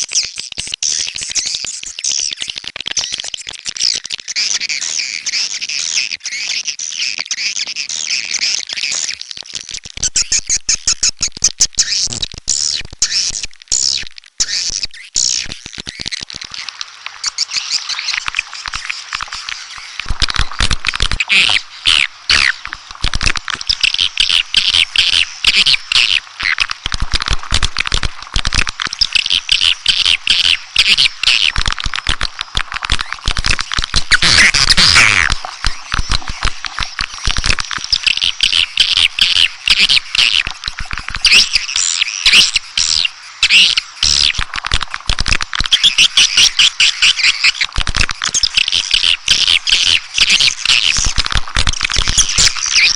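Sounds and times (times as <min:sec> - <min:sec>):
swiftlets twittering: 0:32.9 - 0:44.4.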